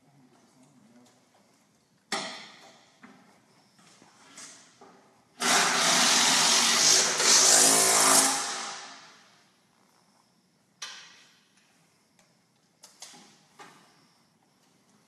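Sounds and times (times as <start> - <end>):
power tool running: 5.4 - 9.0.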